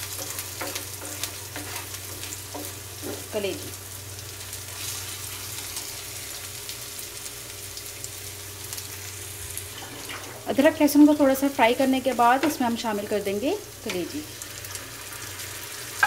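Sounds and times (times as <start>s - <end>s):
onion sizzling in oil: 0.0s - 16.0s
wooden spatula scraping pan: 0.1s - 3.3s.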